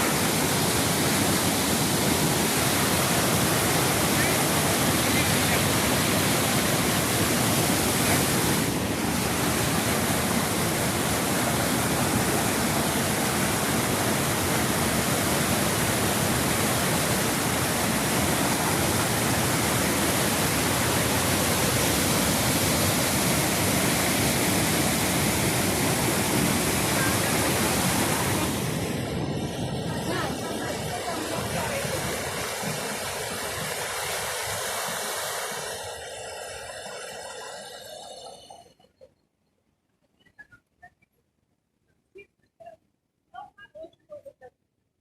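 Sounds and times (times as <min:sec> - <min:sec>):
waterfall rushing: 0:00.0 - 0:38.7.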